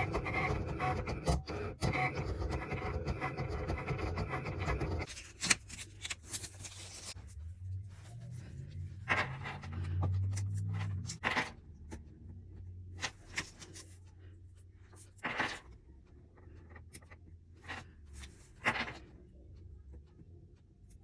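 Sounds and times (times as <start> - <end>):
small objects being handled: 5.1 - 7.4
low hum: 7.1 - 13.1.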